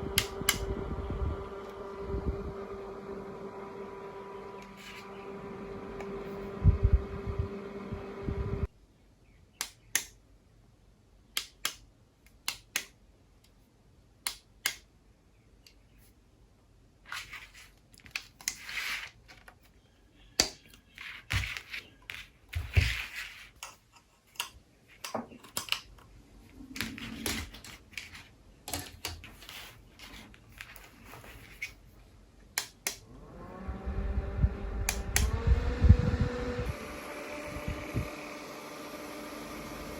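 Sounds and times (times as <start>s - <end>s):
small fan motor hum: 0.0s - 8.7s, 32.8s - 39.9s
sharp plastic clicks: 9.6s - 10.2s, 11.3s - 13.6s, 14.2s - 14.9s, 32.5s - 33.1s
handling noises: 20.4s - 32.2s.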